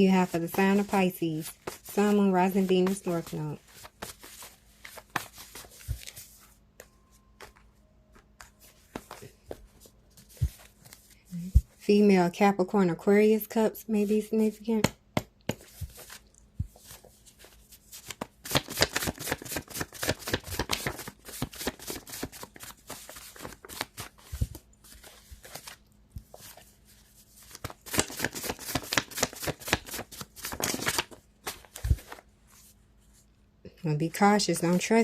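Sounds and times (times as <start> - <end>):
cards riffling: 17.9 - 26.5, 27.4 - 32.2.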